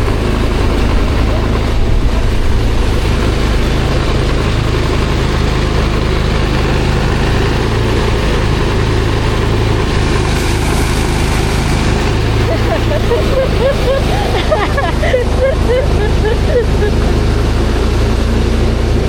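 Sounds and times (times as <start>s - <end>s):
threshing machine engine hum: 0.0s - 19.0s.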